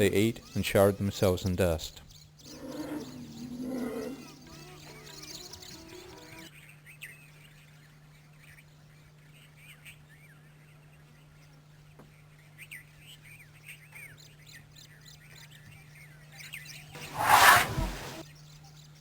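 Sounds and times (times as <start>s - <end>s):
small birds chirping: 0.0s - 6.5s, 13.1s - 18.5s.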